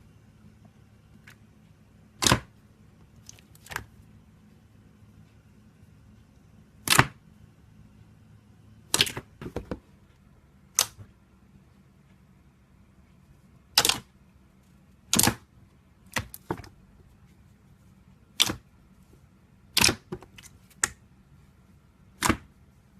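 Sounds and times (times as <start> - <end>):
slime popping: 8.9 - 9.3.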